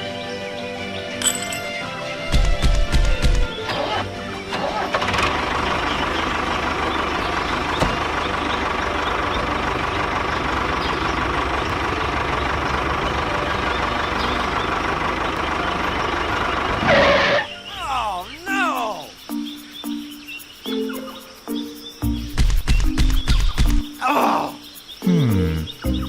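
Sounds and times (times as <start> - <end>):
tractor engine starting and running: 1.2 - 18.2.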